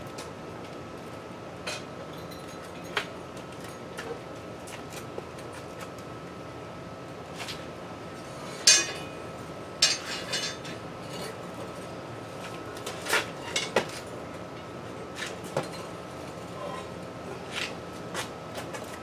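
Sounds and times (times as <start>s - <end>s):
metal tools clanking: 8.6s - 9.1s, 9.8s - 11.4s.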